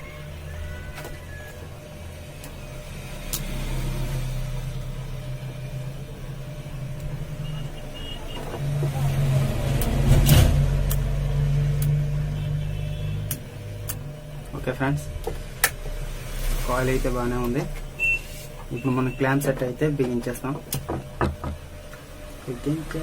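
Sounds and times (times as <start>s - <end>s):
low steady hum: 0.0s - 23.0s
road vehicle passing: 2.7s - 6.4s, 8.6s - 13.3s.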